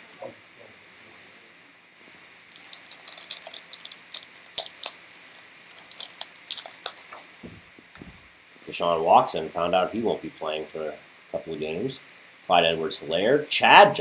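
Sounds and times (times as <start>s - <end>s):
cards clicking and rustling: 2.6s - 8.1s.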